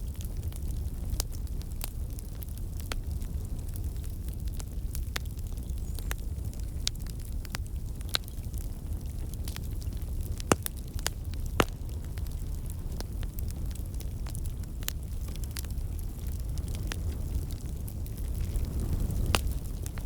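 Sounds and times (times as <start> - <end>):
fire crackling and popping: 0.0 - 20.0
low rumble of fire: 0.0 - 20.0.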